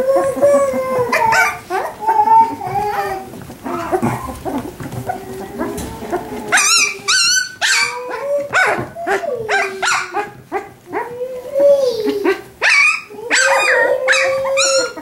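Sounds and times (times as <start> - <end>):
puppies yipping and whining: 0.0 - 15.0.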